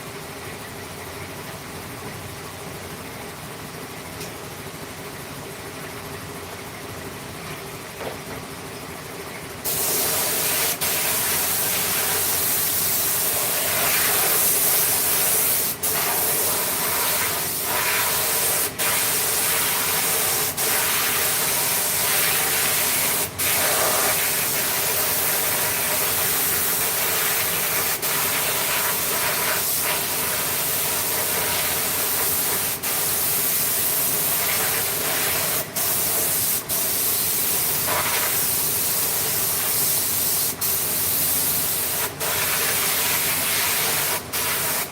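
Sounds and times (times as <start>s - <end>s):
compressed air hissing: 9.7s - 44.9s.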